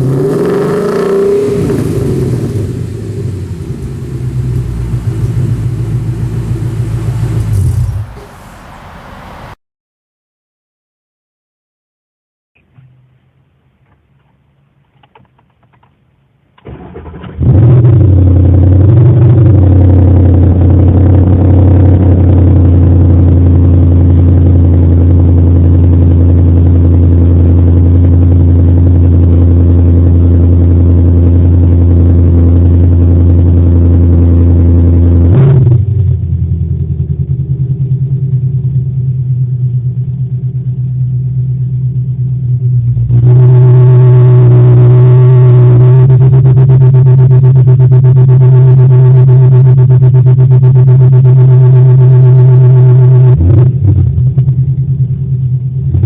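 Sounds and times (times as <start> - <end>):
car engine idling: 0.0 - 9.6, 36.2 - 43.1.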